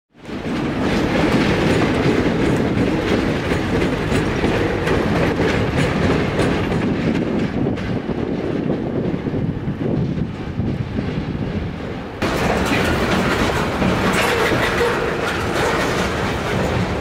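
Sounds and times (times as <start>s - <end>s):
wheels clicking over rail joints: 0.2s - 9.0s, 12.2s - 17.0s
diesel train passing: 0.2s - 17.0s.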